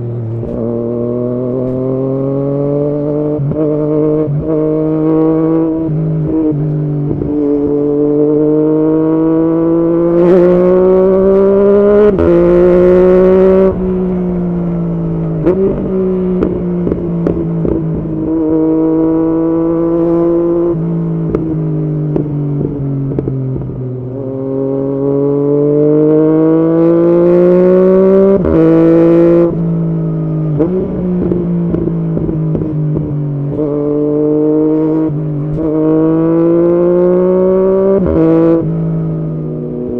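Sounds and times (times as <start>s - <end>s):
motorcycle engine accelerating: 0.0s - 39.9s
exhaust popping and crackling: 10.1s - 23.8s, 30.4s - 33.8s.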